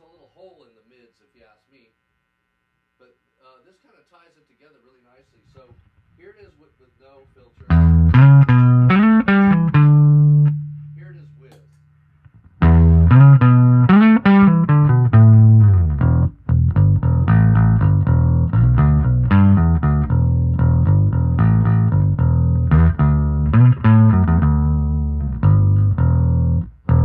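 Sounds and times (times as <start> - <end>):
plucked electric bass notes: 7.7 - 11.6, 12.3 - 27.0.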